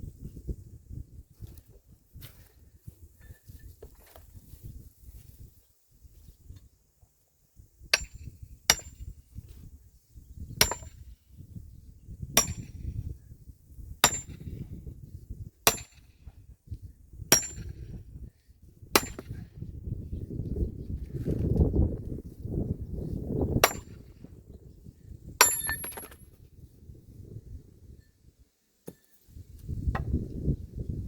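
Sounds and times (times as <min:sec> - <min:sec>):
metallic ringing wood splitting strikes: 0:08.0 - 0:09.0, 0:10.6 - 0:10.9, 0:14.0 - 0:14.4, 0:15.7 - 0:16.1, 0:17.3 - 0:17.7, 0:19.0 - 0:19.3, 0:23.6 - 0:24.0, 0:25.4 - 0:26.2.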